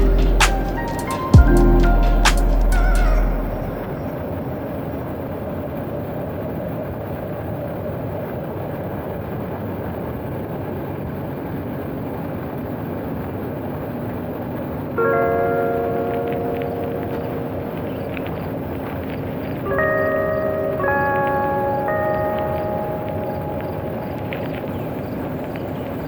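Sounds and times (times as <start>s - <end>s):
held tones: 0.0s - 4.2s.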